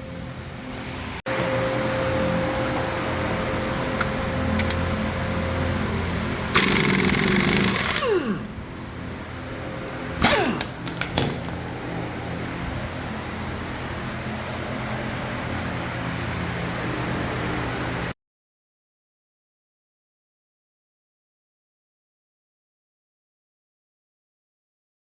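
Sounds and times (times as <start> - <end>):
steady background hum: 0.0 - 18.2
impact wrench running: 6.5 - 8.7, 10.2 - 11.5.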